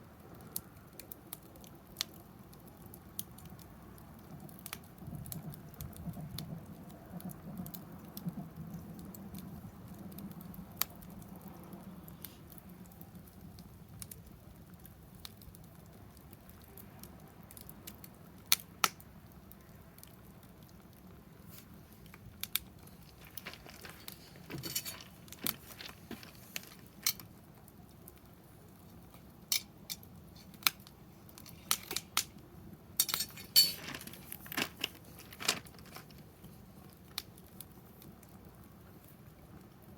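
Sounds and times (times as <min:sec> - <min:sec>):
campfire crackling: 0:00.0 - 0:39.9
sharp pops of fire: 0:00.3 - 0:38.6.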